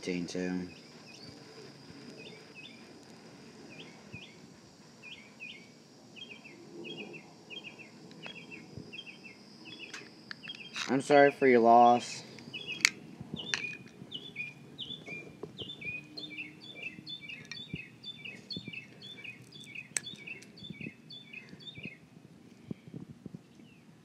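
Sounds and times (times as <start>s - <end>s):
bird singing: 0.0s - 2.9s, 3.6s - 4.4s, 5.0s - 22.1s, 23.4s - 23.9s
sharp clicks: 17.3s - 22.0s.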